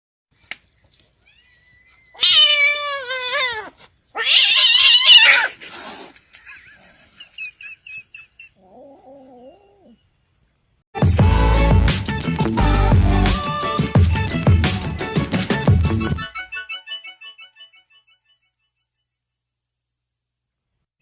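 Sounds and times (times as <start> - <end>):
cat chirps: 1.2 - 5.5
cat yowling: 1.2 - 5.6.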